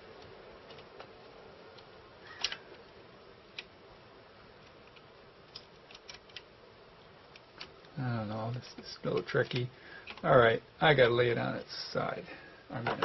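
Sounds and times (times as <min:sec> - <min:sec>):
faint steady hiss: 0:00.0 - 0:13.0
small parts clicking and tapping: 0:00.2 - 0:02.8, 0:03.5 - 0:03.8, 0:04.6 - 0:06.5, 0:07.2 - 0:10.3.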